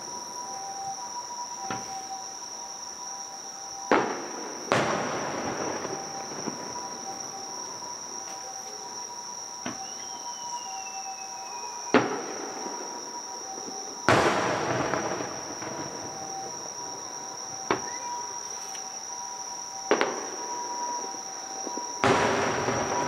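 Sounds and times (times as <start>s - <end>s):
firework crackle: 3.8s - 19.2s, 19.8s - 23.0s
distant firework booms: 3.9s - 8.2s, 11.9s - 18.3s, 19.8s - 23.0s.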